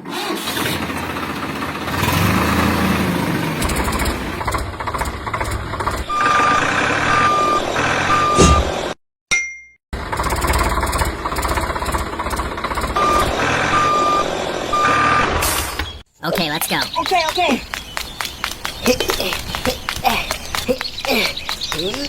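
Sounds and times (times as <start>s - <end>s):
vehicle engine running: 0.3s - 8.5s, 10.0s - 15.1s
reversing alarm beeping: 6.1s - 8.8s, 13.0s - 15.4s.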